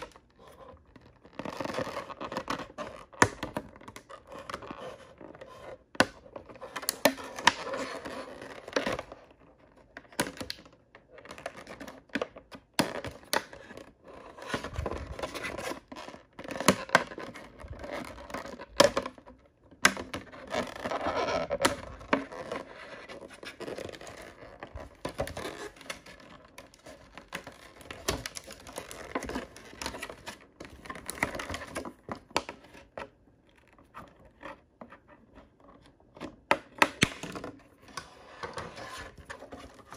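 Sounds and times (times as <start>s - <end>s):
plastic and foil crinkling: 20.4s - 32.7s.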